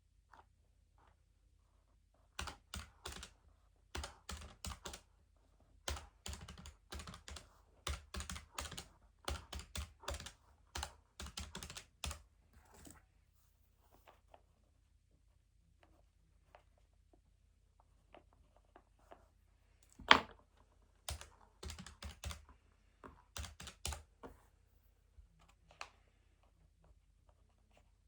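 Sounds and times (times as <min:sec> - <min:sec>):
keyboard typing clicks: 0:02.4 - 0:03.3, 0:04.0 - 0:05.0, 0:05.9 - 0:12.2, 0:23.4 - 0:24.1.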